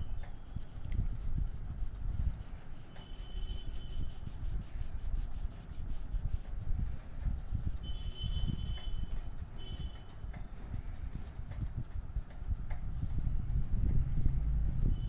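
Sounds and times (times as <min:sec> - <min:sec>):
colouring strokes on paper: 0:00.0 - 0:08.2
low rumble: 0:13.1 - 0:15.0.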